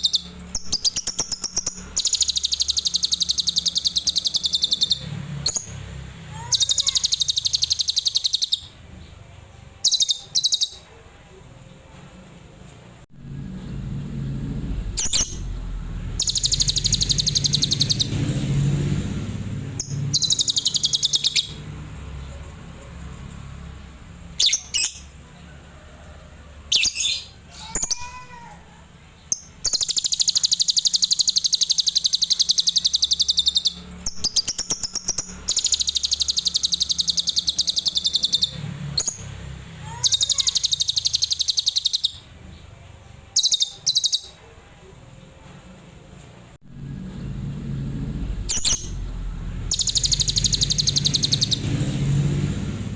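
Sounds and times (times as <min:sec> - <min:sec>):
lovebird high-pitched trills: 0:00.0 - 0:08.7, 0:15.0 - 0:18.2, 0:19.8 - 0:21.6, 0:24.4 - 0:25.2, 0:29.3 - 0:39.3, 0:39.9 - 0:42.2, 0:43.4 - 0:44.4, 0:48.5 - 0:51.8.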